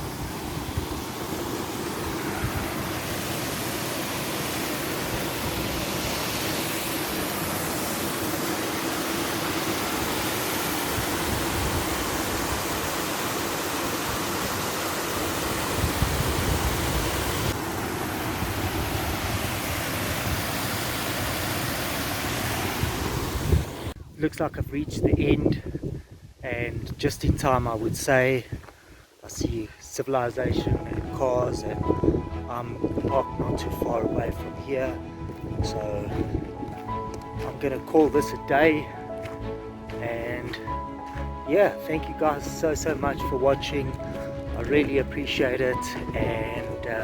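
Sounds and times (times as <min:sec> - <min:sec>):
wind blowing across microphone: 0:00.0 - 0:03.9, 0:10.9 - 0:13.0, 0:15.6 - 0:17.6, 0:22.3 - 0:38.8, 0:42.1 - 0:47.0.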